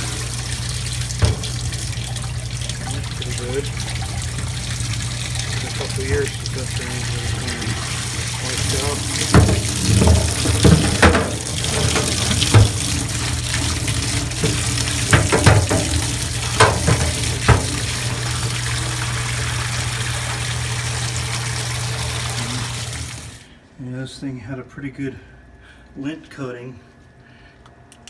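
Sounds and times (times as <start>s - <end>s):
water spraying with rushing hiss: 0.0s - 23.4s
sharp knocks: 8.4s - 18.4s.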